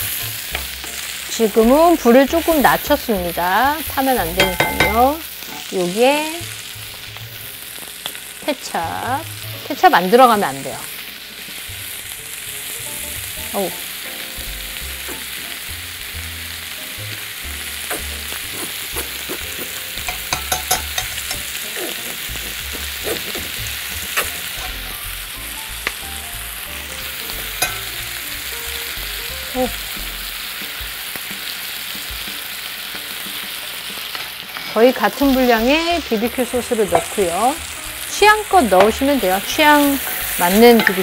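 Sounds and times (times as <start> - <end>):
bacon and onion sizzling in a pot: 0.0 - 41.0
utensils clicking and tapping: 4.3 - 5.6, 18.6 - 24.8, 38.6 - 41.0.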